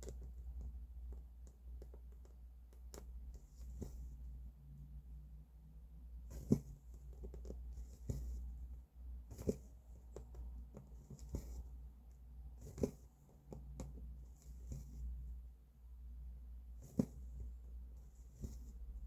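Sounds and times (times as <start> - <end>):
low steady hum: 0.0 - 19.0
thread rasping through fabric: 6.3 - 8.6, 9.3 - 15.3, 16.8 - 18.8
needle clicking through fabric: 9.3 - 15.1.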